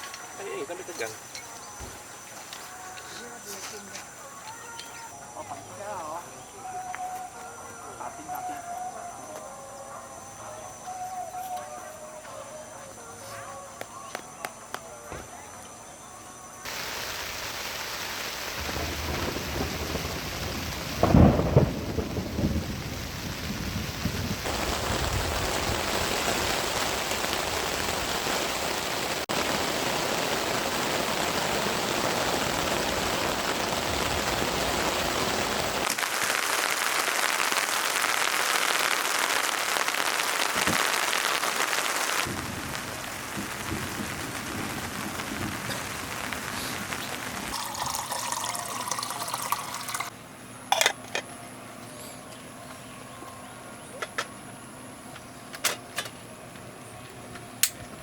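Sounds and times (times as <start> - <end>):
thunder rumble: 16.7 - 35.9, 42.1 - 48.0
heavy rain: 16.7 - 50.1.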